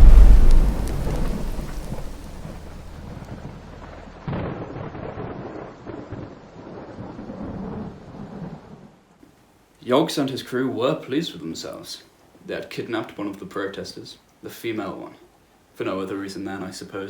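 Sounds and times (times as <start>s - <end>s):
thunder rumbling: 0.0s - 8.5s.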